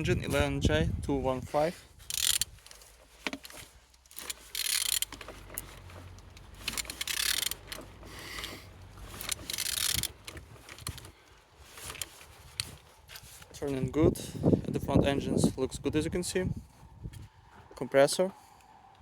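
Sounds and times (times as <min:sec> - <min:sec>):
engine cranked by hand: 0:01.6 - 0:13.8.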